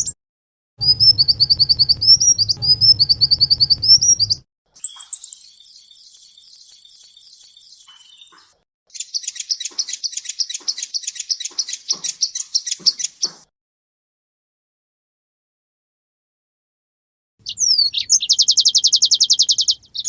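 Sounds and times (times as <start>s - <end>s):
songbird trilling: 0.9s - 13.4s, 17.4s - 20.0s.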